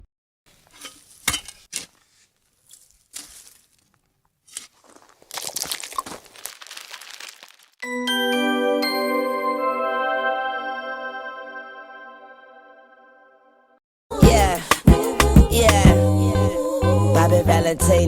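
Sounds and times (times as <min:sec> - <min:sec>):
paper or plastic rustling: 0:00.5 - 0:07.8
music with chiming bell tones: 0:07.8 - 0:12.7.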